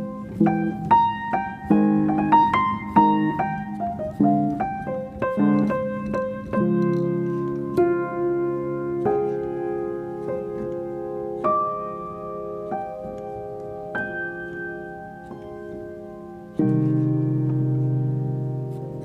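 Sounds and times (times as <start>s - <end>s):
calm slow piano music: 0.0s - 19.0s.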